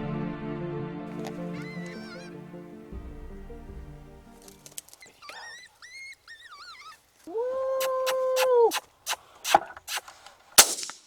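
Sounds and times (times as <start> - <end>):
coyote-style whines and howl: 1.2 - 2.6, 4.9 - 8.7.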